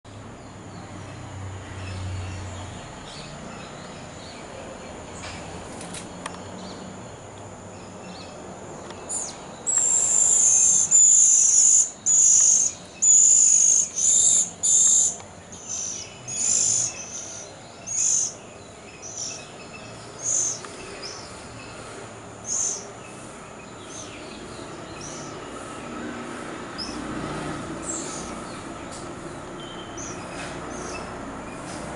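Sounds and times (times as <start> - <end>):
high-pitched bird calls: 9.0 - 18.4.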